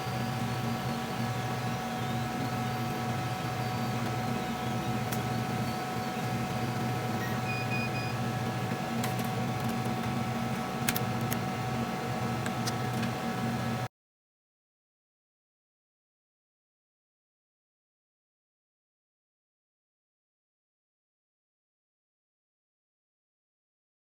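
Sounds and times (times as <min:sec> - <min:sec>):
cnc machine humming: 0:00.0 - 0:13.9
short beeps: 0:07.2 - 0:08.2.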